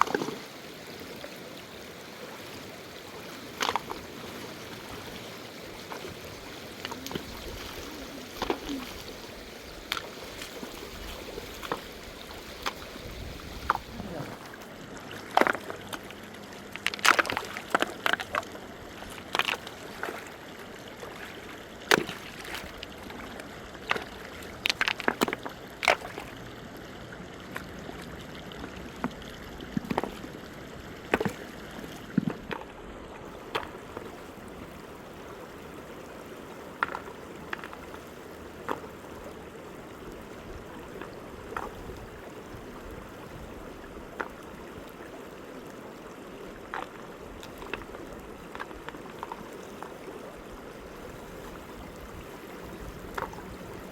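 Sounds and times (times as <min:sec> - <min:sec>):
river water flowing: 0:00.0 - 0:53.9
water splashing and sloshing: 0:00.0 - 0:53.9.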